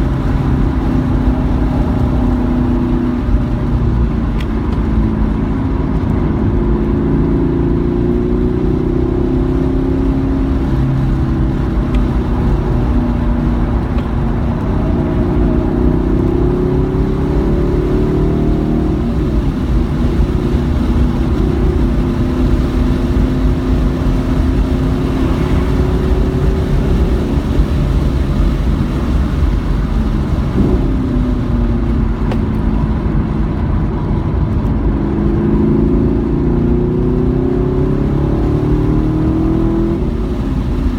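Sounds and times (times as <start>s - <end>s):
car engine pulling hard: 0.0s - 40.9s
road and wind noise: 0.0s - 40.9s.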